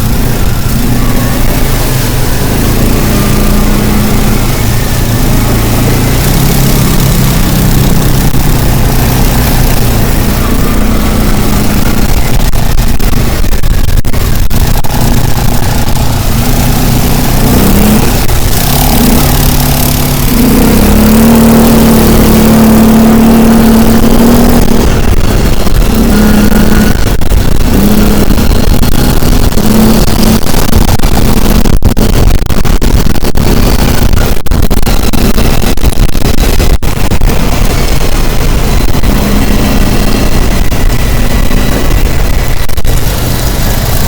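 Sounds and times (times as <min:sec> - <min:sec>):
vehicle engine running: 0:00.0 - 0:44.0
wind and road noise: 0:00.0 - 0:44.0.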